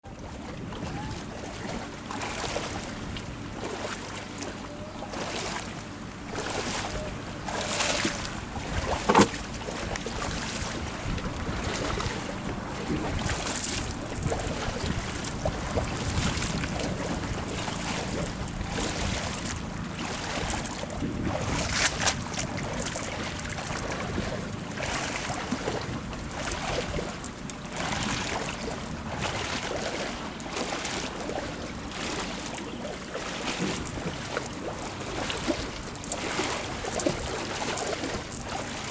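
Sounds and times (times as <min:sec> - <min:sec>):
water splashing and sloshing: 0:00.0 - 0:38.9
wind buffeting microphone: 0:05.9 - 0:30.3.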